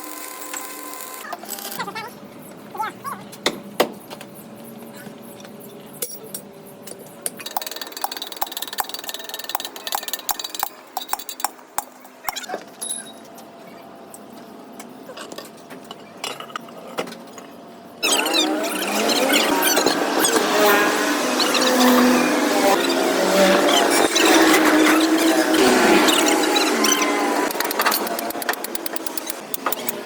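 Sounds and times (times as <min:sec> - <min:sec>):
metal tools clinking on workbench: 0:06.0 - 0:06.5, 0:12.8 - 0:13.4.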